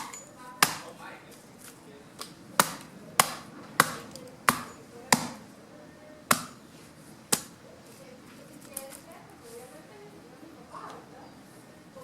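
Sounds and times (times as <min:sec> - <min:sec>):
chopping branches by hand: 0:00.0 - 0:01.0, 0:01.6 - 0:05.4, 0:06.3 - 0:06.6, 0:07.3 - 0:07.6.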